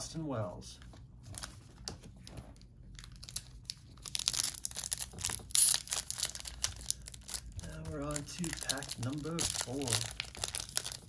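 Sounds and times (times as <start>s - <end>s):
plastic wrapper crinkling and tearing: 2.5s - 11.0s.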